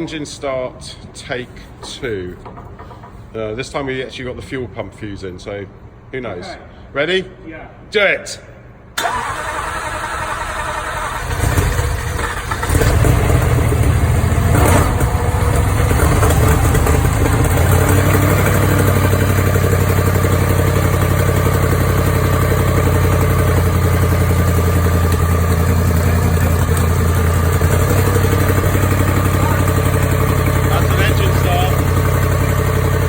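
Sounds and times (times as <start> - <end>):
car engine starting and idling: 9.0 - 33.0.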